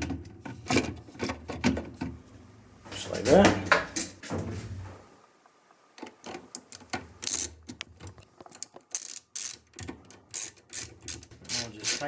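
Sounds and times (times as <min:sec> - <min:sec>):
ratchet wrench clicking: 0:07.2 - 0:07.5, 0:08.9 - 0:12.0.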